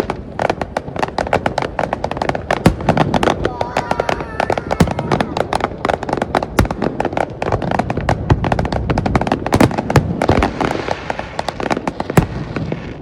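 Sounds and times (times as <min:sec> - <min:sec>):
fireworks bangs and pops: 0:00.0 - 0:13.0.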